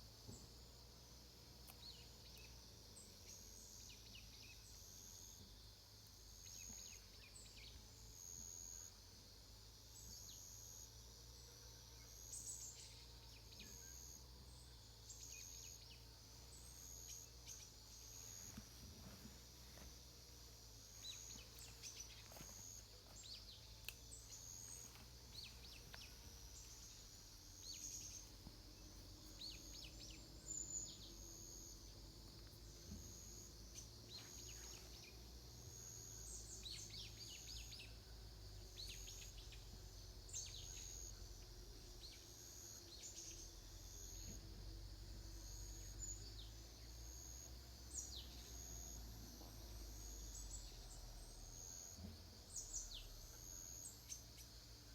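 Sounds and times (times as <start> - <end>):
small birds chirping: 12.2 - 38.0.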